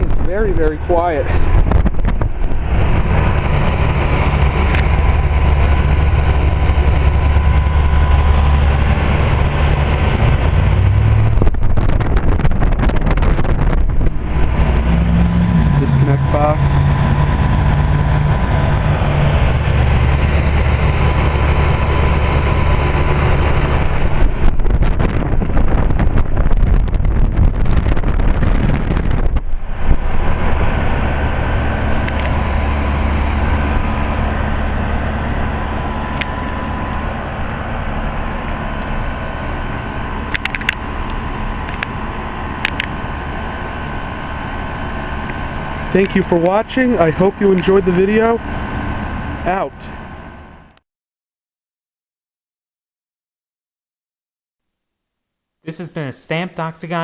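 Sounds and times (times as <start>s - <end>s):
heat pump compressor hum: 0.0s - 50.8s
rough rushing noise: 0.0s - 50.8s
sharp clicks: 1.4s - 12.2s, 31.9s - 39.0s, 40.3s - 42.0s, 42.6s - 43.1s.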